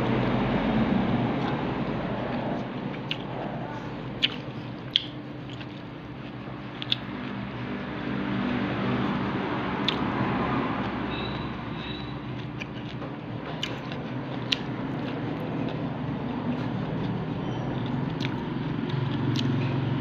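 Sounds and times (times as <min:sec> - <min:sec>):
steady low hum: 0:00.0 - 0:20.0
person chewing food: 0:01.4 - 0:10.2, 0:10.8 - 0:19.8
wet mouth smacks: 0:02.9 - 0:03.3, 0:04.2 - 0:05.7, 0:06.8 - 0:07.1.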